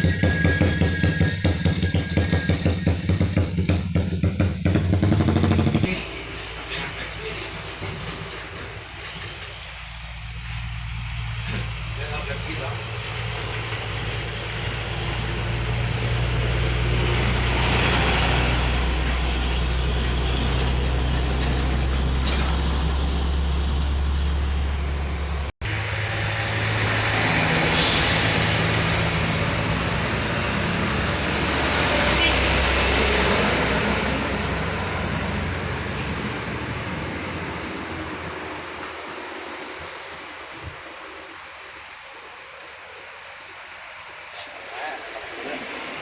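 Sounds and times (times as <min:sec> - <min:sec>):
diesel truck engines labouring: 0:05.9 - 0:40.3.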